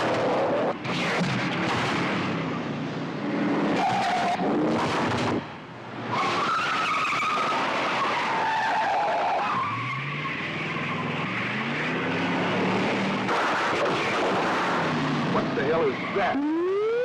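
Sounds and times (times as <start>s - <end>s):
car tyres squealing: 3.7s - 5.3s, 6.1s - 12.5s, 13.2s - 16.6s
car engine accelerating hard: 9.8s - 16.4s.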